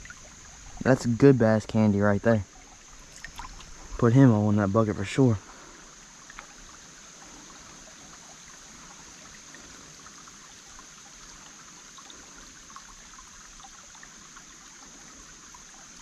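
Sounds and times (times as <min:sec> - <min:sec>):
creek trickling over rocks: 0:00.0 - 0:16.0
high-pitched hiss: 0:00.0 - 0:16.0
tiny splashes and drips: 0:00.0 - 0:16.0.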